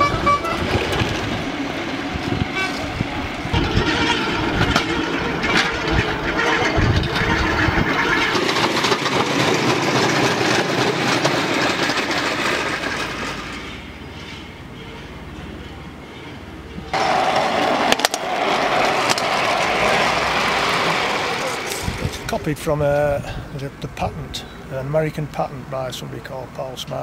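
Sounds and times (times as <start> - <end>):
wheels rattling on railway track: 0.0 - 27.0.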